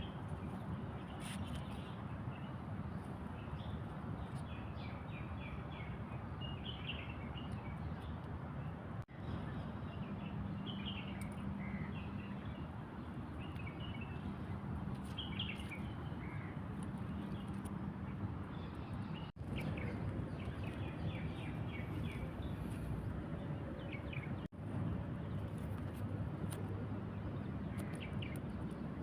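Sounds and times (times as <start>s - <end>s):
small birds chirping: 9.1s - 24.6s.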